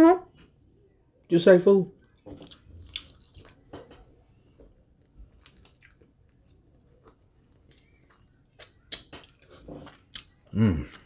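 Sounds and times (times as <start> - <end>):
wet chewing mouth clicks: 2.3 - 3.8, 5.4 - 11.0.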